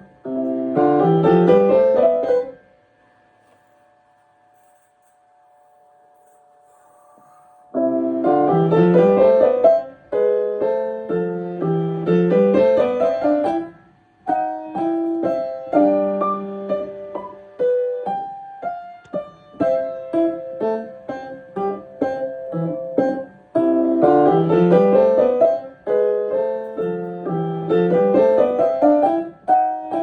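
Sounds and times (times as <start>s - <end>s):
piano playing fast runs: 0.0s - 2.5s, 7.8s - 13.7s, 19.6s - 30.0s.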